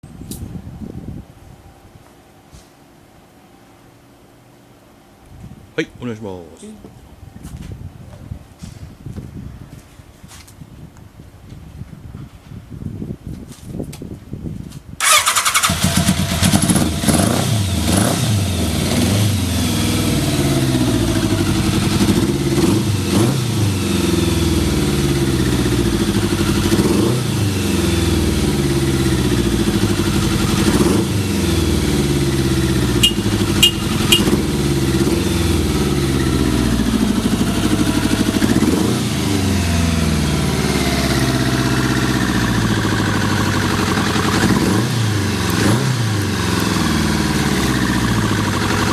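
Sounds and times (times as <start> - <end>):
electric starter: 15.0 - 17.2
motorcycle engine idling: 15.0 - 23.1, 23.7 - 48.9.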